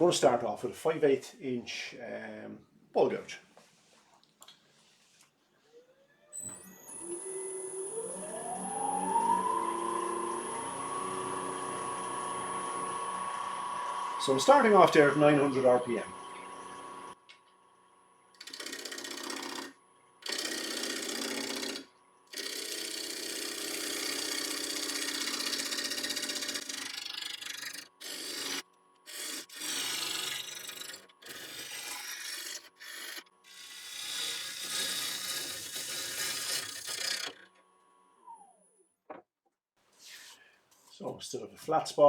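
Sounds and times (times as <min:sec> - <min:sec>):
lathe motor whine: 0:06.3 - 0:37.4
gouge cutting wood on a lathe: 0:06.8 - 0:17.2, 0:18.4 - 0:37.5.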